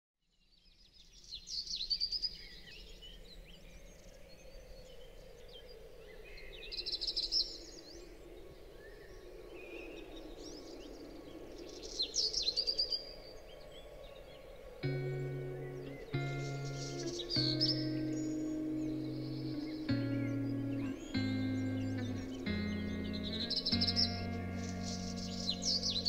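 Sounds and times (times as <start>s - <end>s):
faint background noise: 0.3s - 26.0s
soft bird chirps: 11.8s - 26.0s
high chirping bird trills: 14.8s - 26.0s.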